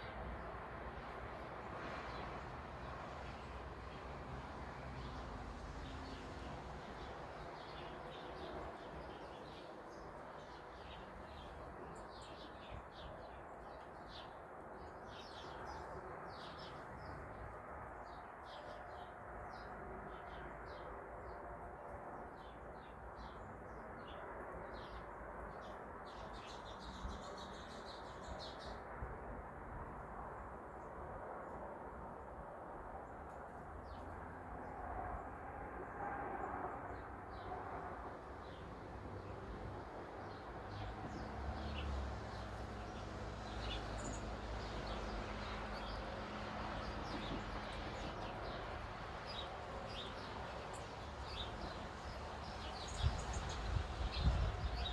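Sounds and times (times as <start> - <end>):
small birds chirping: 26.1 - 28.8, 40.2 - 46.1, 46.8 - 54.9.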